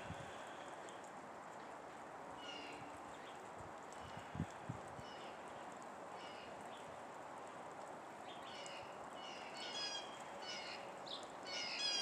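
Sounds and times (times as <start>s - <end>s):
songbirds chirping: 0.2s - 12.0s.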